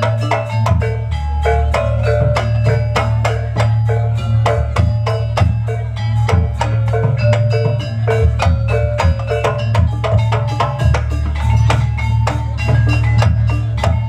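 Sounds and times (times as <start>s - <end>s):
drums: 0.0s - 14.0s
metal mallet percussion: 0.0s - 14.0s.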